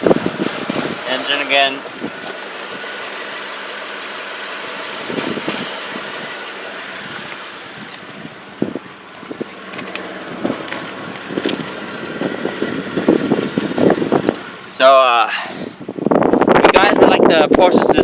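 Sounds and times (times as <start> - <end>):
wind on microphone: 0.0 - 1.1, 5.0 - 14.6, 15.5 - 18.0
car engine idling: 0.0 - 18.0.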